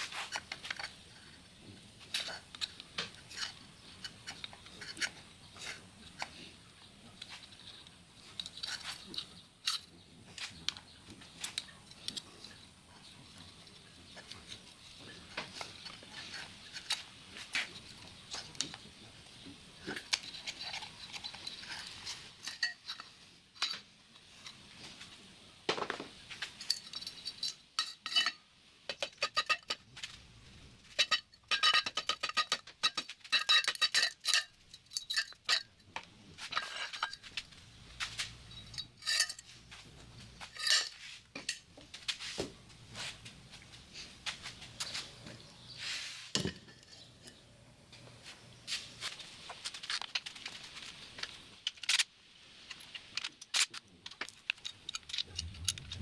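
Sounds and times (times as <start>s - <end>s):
metal tools clinking and clanking: 19.8s - 24.6s, 25.9s - 30.2s, 30.8s - 42.2s, 53.2s - 56.0s.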